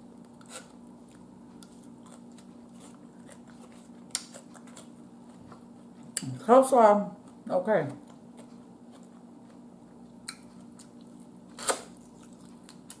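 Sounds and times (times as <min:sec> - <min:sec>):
quiet chewing: 0:00.2 - 0:06.3, 0:08.0 - 0:13.0.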